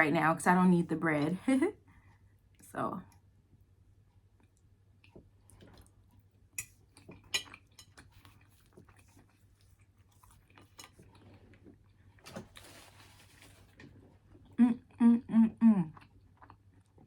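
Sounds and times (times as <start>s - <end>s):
person chewing: 4.4s - 15.0s, 15.9s - 17.0s.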